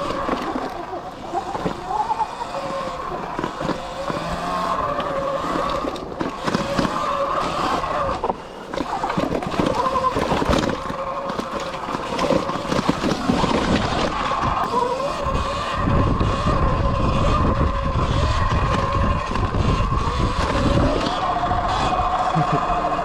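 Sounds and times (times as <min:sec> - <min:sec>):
electric motor whine: 0:00.0 - 0:23.0
tyre noise: 0:00.0 - 0:23.0.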